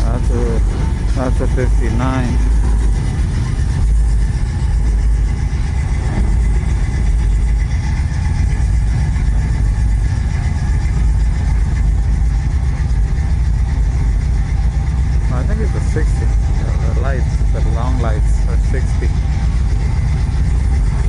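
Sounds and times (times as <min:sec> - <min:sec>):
car engines idling: 0:00.0 - 0:21.0.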